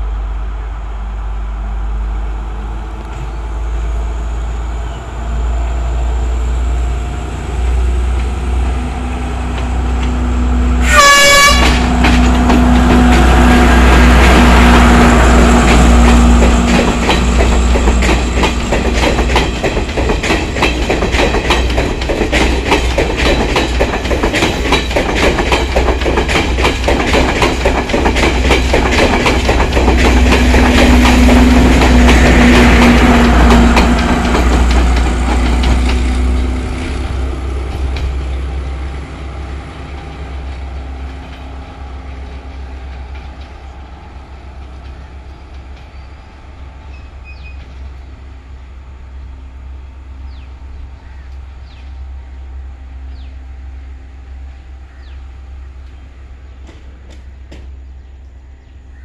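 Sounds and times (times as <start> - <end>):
train wheels clicking over rail joints: 7.0 - 48.0, 55.8 - 58.0.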